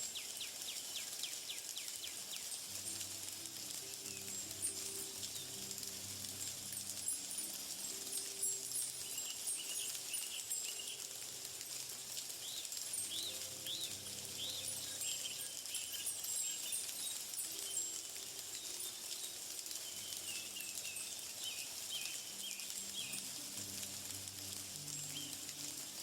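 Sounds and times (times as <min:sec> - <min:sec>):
insect-like hiss with ticking: 0:00.0 - 0:26.0
bird chirps: 0:12.4 - 0:18.0.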